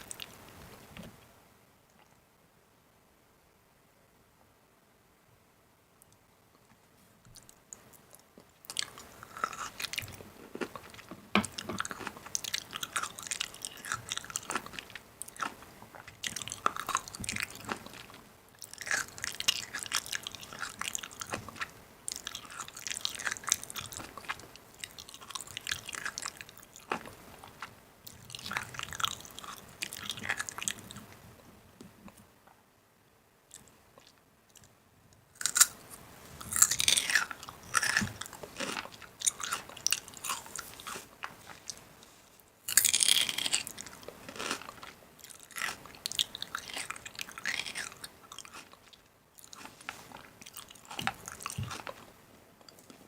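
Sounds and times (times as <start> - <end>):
person chewing crunchy food: 0.0 - 0.6, 7.4 - 31.2, 35.4 - 53.0.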